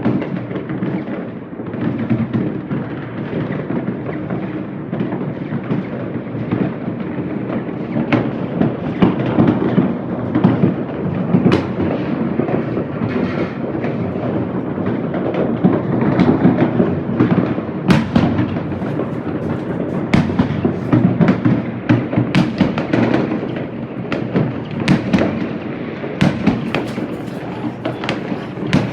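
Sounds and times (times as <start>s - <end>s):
rumble of fireworks bangs: 0.0s - 28.9s
sharp firework cracks: 6.6s - 28.9s.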